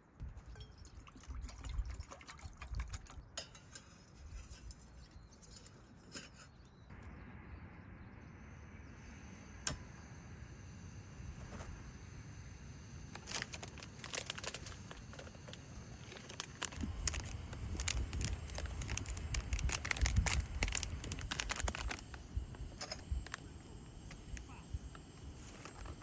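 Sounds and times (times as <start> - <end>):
crinkling and rustling: 13.1 - 26.0.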